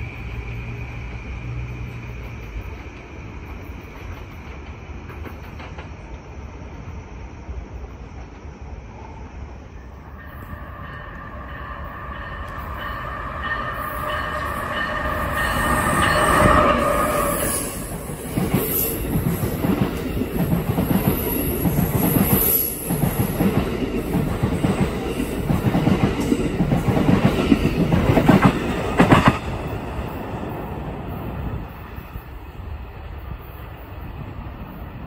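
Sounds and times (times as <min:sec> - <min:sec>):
locomotive whine: 0:07.8 - 0:35.0.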